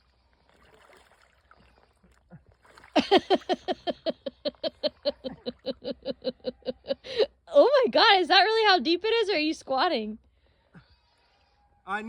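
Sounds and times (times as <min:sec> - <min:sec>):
person laughing: 0:03.0 - 0:07.4.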